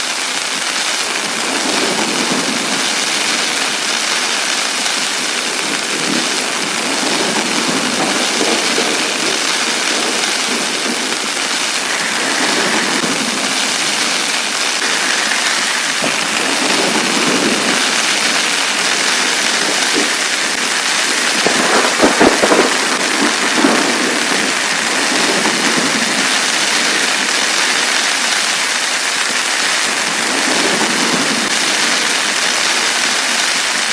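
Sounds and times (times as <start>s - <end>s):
heavy rain on a tent: 0.0s - 33.9s.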